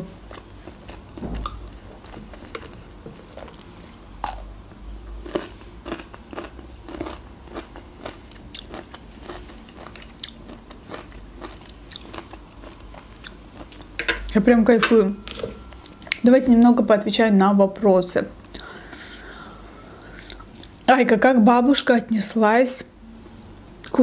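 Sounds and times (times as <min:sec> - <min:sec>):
chewing food with mouth clicks: 0:00.3 - 0:14.0.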